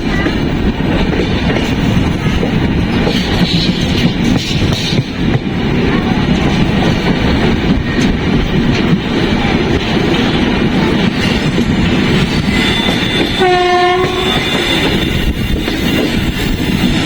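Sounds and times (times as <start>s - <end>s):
train wheels clickety-clack: 0.0s - 17.0s
locomotive horn: 12.6s - 15.4s.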